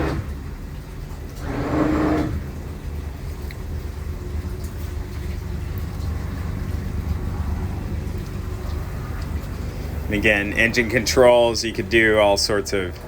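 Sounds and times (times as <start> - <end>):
outboard engines idling: 0.0 - 13.0.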